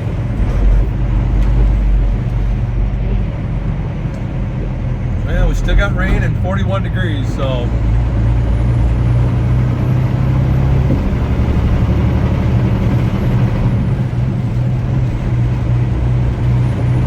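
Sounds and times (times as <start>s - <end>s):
diesel engine droning: 0.0s - 17.0s
tyre noise on wet road: 7.5s - 17.0s.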